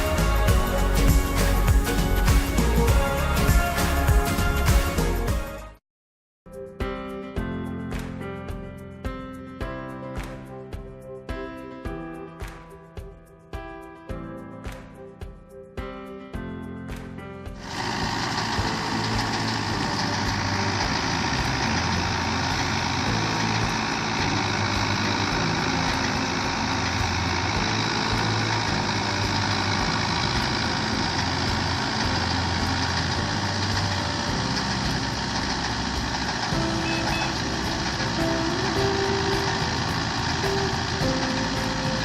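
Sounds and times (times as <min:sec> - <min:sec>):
threshing machinery running: 0:17.6 - 0:42.0.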